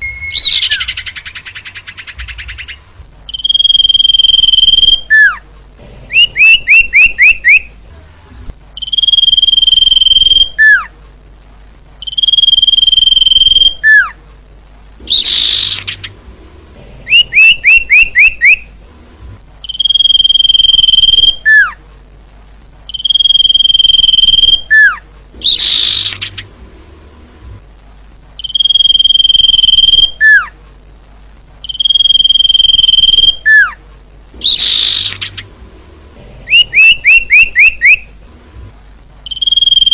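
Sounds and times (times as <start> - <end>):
bird song with trills and whistles: 0.0 - 5.4, 6.1 - 7.7, 8.8 - 10.9, 12.0 - 14.2, 15.0 - 16.2, 17.1 - 18.7, 19.6 - 21.8, 22.9 - 26.5, 28.4 - 30.6, 31.6 - 33.8, 34.4 - 35.5, 36.5 - 38.1, 39.2 - 39.9.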